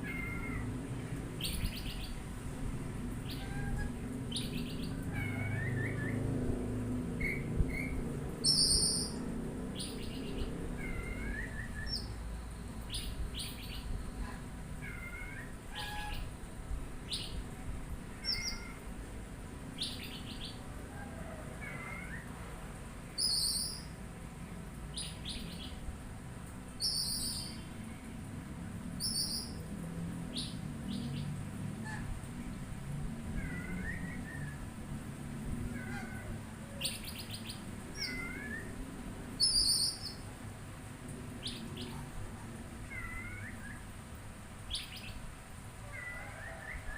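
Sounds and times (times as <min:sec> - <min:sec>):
bird chirping and whistling: 0:07.2 - 0:09.1, 0:23.2 - 0:23.8, 0:39.4 - 0:40.2.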